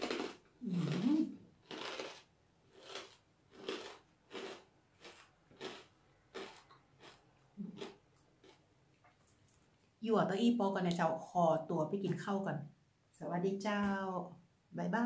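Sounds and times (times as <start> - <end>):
crunchy chewing: 0.0 - 9.7.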